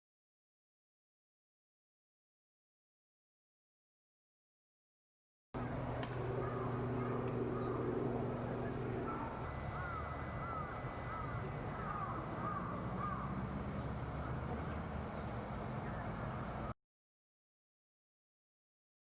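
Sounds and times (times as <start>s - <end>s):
low steady hum: 5.6s - 16.7s
bird calling short notes: 6.3s - 13.4s.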